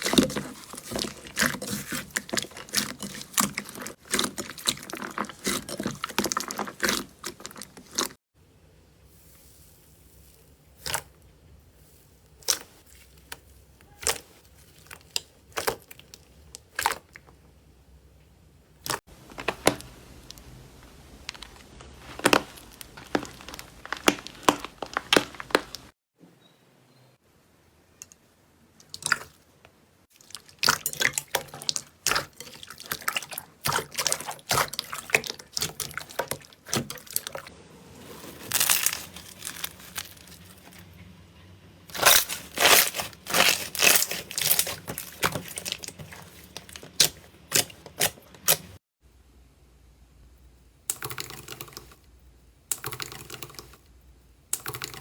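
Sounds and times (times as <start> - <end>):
slime crackling and popping: 21.2 - 25.9, 38.4 - 40.7, 41.9 - 48.7.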